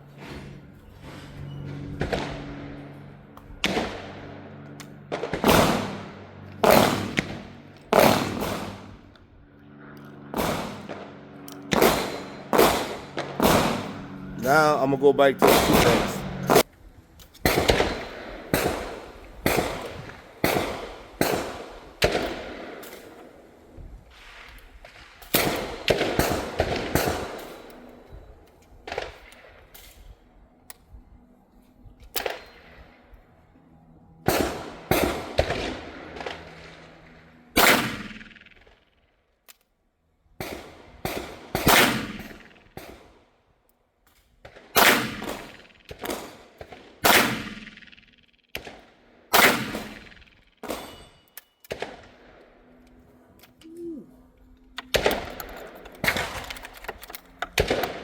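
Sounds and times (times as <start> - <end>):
echoing gunshots: 2.0 - 9.1, 9.8 - 16.6, 17.4 - 23.5, 24.2 - 27.7, 34.2 - 38.8, 40.4 - 43.1, 44.4 - 51.1, 57.5 - 58.0.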